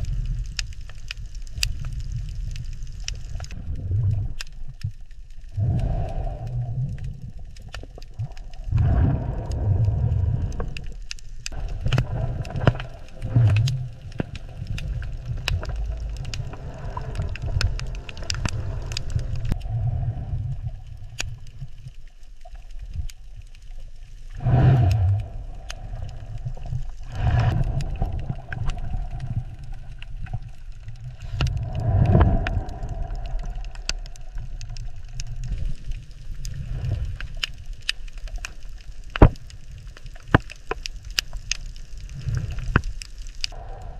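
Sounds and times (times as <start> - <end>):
small clicks: 0.0 - 8.6, 9.4 - 19.7
underwater rumbling wash: 0.0 - 22.0, 24.1 - 40.4, 41.3 - 43.9.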